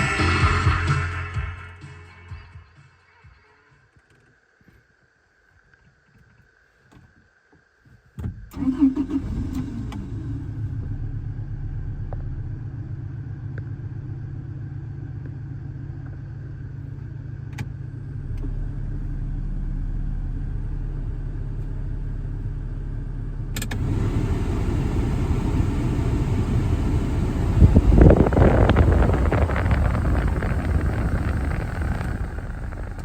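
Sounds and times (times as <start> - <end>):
truck engine idling: 19.9 - 33.0
click: 23.5 - 24.0
rushing noise: 23.8 - 33.0.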